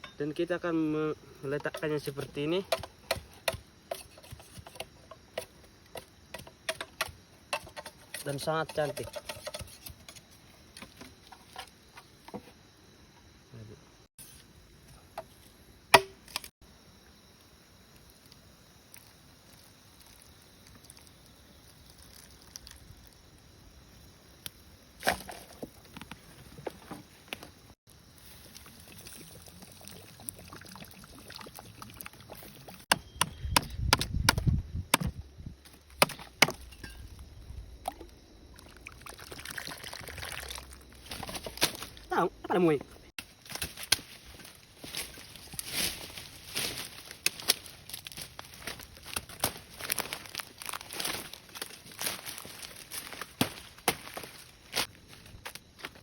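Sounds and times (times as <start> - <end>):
knocks and chops on wood: 2.7 - 5.5, 15.9 - 16.5, 32.9 - 35.2, 36.0 - 36.6.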